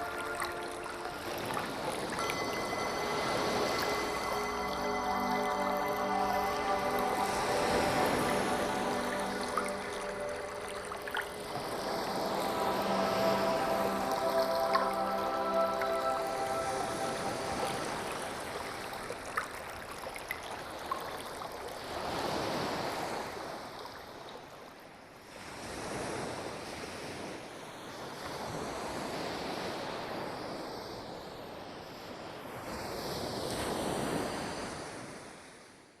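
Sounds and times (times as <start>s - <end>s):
sea waves washing in: 0.0s - 19.8s.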